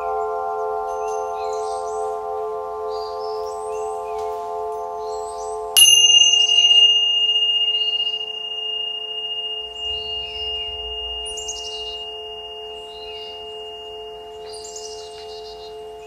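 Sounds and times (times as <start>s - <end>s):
bright high chime: 5.8s - 16.0s
ringing bell tone: 5.8s - 16.0s.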